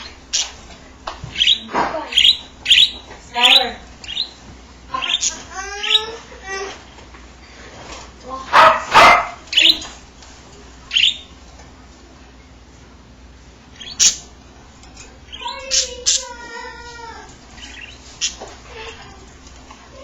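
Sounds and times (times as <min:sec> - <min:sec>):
budgerigars chirping: 0:00.0 - 0:00.6, 0:01.3 - 0:06.2, 0:08.6 - 0:09.9, 0:10.9 - 0:11.4, 0:13.8 - 0:14.4, 0:15.2 - 0:16.4, 0:17.5 - 0:18.5.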